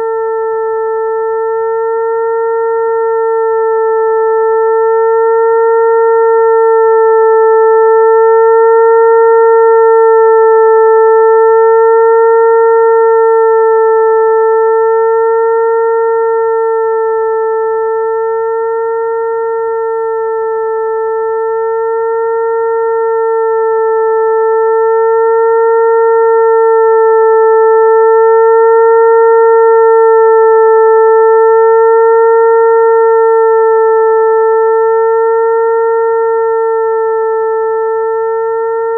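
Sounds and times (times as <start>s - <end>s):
mosquito-like buzzing tone: 0.0s - 38.9s.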